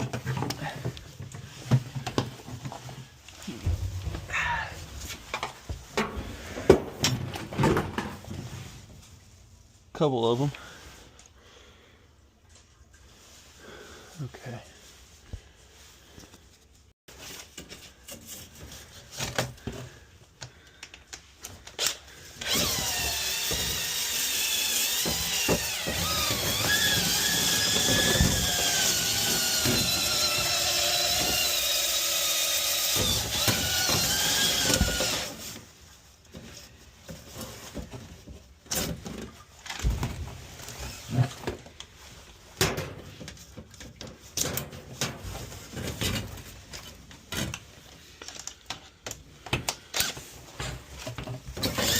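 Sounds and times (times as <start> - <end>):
power drill running: 22.4 - 35.5, 51.6 - 51.9.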